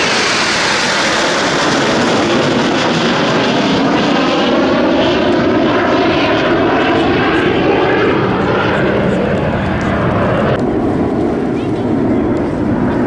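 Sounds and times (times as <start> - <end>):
jet engines flying past: 0.0 - 13.0.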